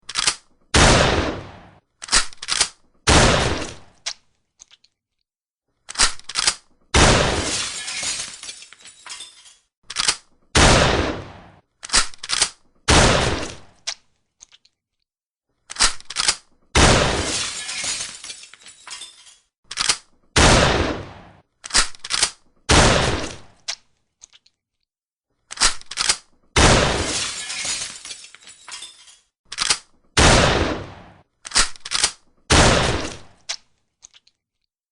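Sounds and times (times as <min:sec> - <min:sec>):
shotgun shots: 0:00.7 - 0:01.8, 0:03.1 - 0:03.9, 0:07.0 - 0:07.6, 0:10.6 - 0:11.6, 0:12.9 - 0:13.7, 0:16.8 - 0:17.4, 0:20.4 - 0:21.4, 0:22.7 - 0:23.6, 0:26.6 - 0:27.2, 0:30.2 - 0:31.7, 0:32.5 - 0:33.4.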